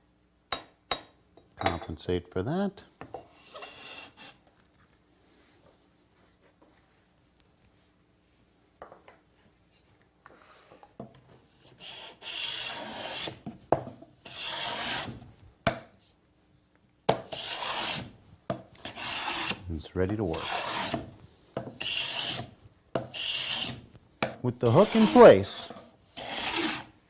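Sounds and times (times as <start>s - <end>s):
scraper plane rasping on wood: 11.8s - 13.4s, 14.2s - 15.2s, 17.3s - 18.1s, 18.8s - 19.6s, 20.3s - 21.1s, 21.8s - 22.5s, 23.1s - 23.8s, 24.7s - 25.6s, 26.2s - 26.9s.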